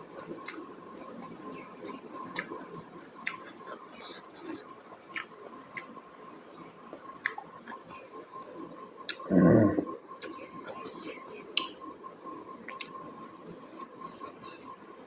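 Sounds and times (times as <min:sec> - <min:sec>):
close-miked chewing: 0:00.0 - 0:15.0
faint steady tone: 0:00.0 - 0:15.0
mouth clicks and smacks: 0:00.2 - 0:01.4, 0:02.2 - 0:02.6, 0:03.2 - 0:06.0, 0:06.9 - 0:08.0, 0:09.0 - 0:11.8, 0:12.6 - 0:14.7.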